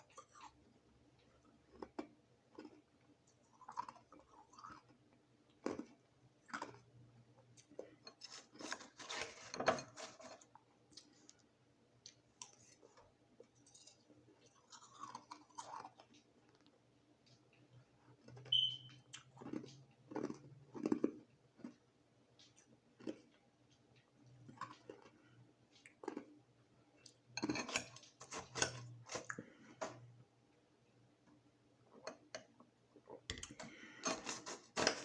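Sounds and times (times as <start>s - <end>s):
crushed ice being chewed: 1.2s - 11.4s, 12.1s - 23.4s, 24.2s - 26.4s.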